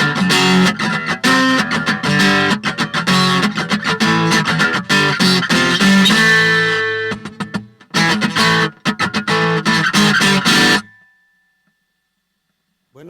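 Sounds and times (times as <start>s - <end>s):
acoustic guitar strummed chords: 0.0s - 11.8s.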